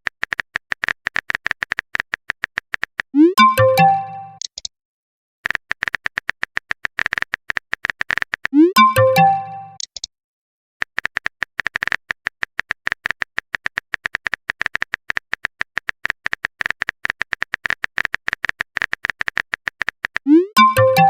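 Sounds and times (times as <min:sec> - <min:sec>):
electronic message chime: 0:03.2 - 0:04.4, 0:08.6 - 0:09.8, 0:20.3 - 0:21.0.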